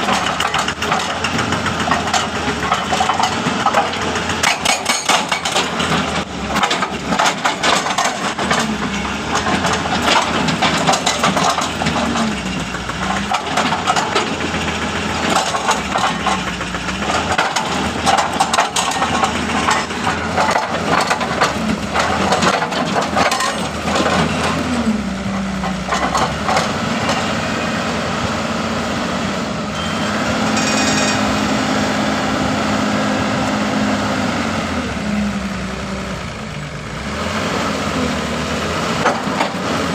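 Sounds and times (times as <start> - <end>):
hydraulic breaker hammering rock: 0.0 - 24.6
diesel engine running: 0.0 - 39.9.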